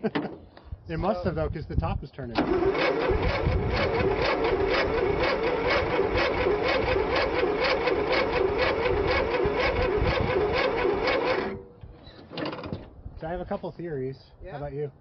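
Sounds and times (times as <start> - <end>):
engine cranking slowly: 2.4 - 11.6
starter motor whining: 2.4 - 12.8.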